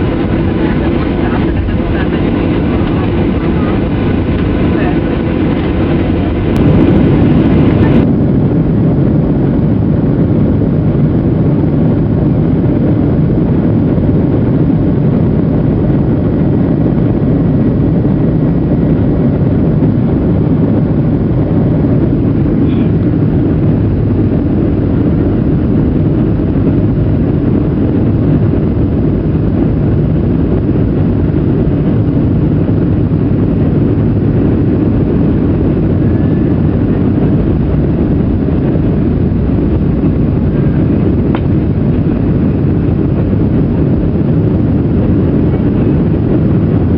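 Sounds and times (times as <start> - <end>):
jet engines at high thrust: 0.0 - 46.9.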